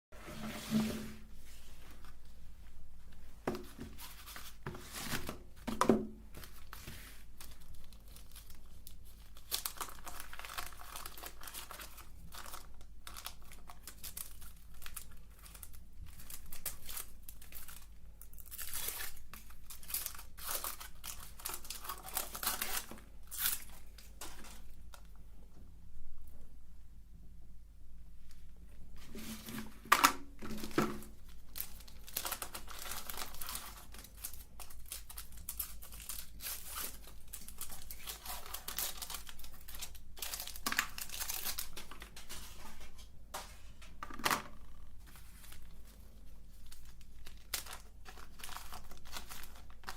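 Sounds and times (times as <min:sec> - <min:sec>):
wrapper tearing and crinkling: 0:07.4 - 0:25.0, 0:30.5 - 0:42.4, 0:45.0 - 0:49.9.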